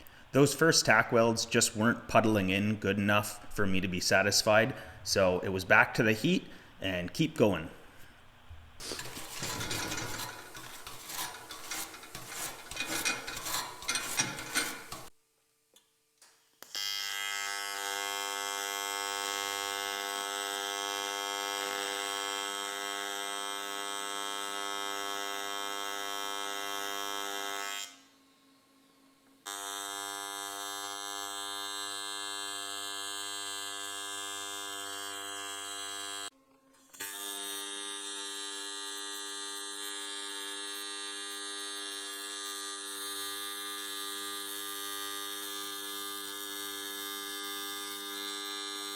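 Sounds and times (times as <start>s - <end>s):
welding arc buzzing: 8.4s - 15.1s, 16.7s - 28.0s, 29.5s - 36.3s, 36.9s - 48.9s
scratching and crackling: 8.8s - 15.1s.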